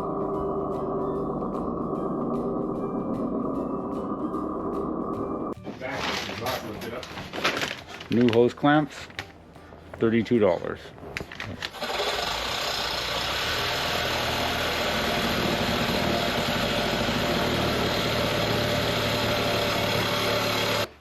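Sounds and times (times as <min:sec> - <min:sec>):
steady mechanical running noise: 0:00.0 - 0:05.6, 0:11.3 - 0:20.9.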